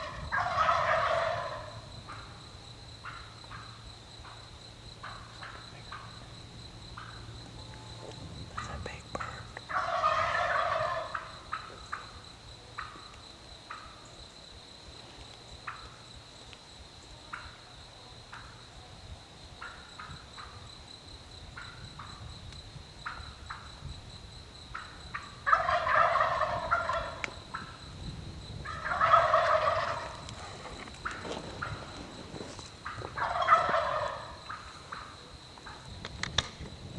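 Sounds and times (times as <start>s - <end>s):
turkey gobbling: 0.0s - 2.2s, 9.7s - 12.0s, 24.7s - 27.8s, 28.6s - 30.4s, 32.8s - 35.8s.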